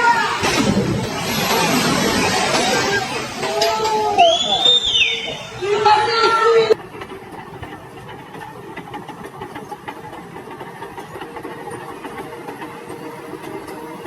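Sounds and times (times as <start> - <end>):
engine running: 0.1 - 5.8.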